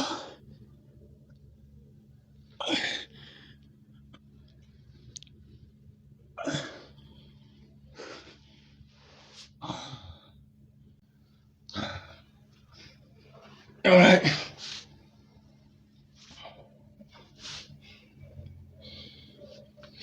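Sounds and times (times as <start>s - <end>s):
man breathing hard: 2.7s - 3.8s, 6.6s - 10.4s, 17.4s - 20.0s.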